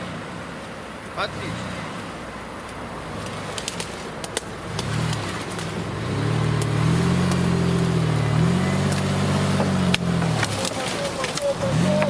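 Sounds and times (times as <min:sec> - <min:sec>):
engine revving: 0:01.2 - 0:12.0
sharp clicks: 0:02.6 - 0:08.0, 0:08.6 - 0:12.0.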